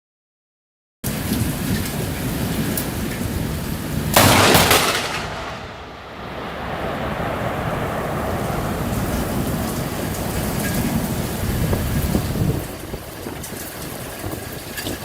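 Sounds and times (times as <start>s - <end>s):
heavy rain hissing: 1.1s - 15.0s
thunder crack: 4.1s - 12.4s.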